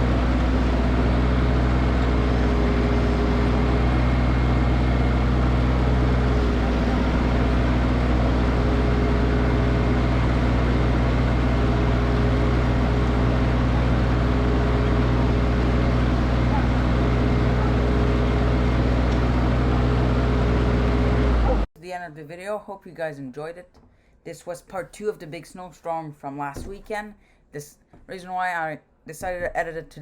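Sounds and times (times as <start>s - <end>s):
snowblower engine running: 0.0s - 21.7s.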